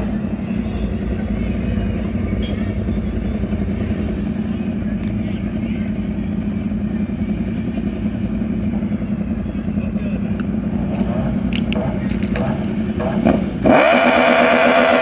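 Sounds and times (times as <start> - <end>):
vehicle engine idling and revving: 0.0 - 15.0.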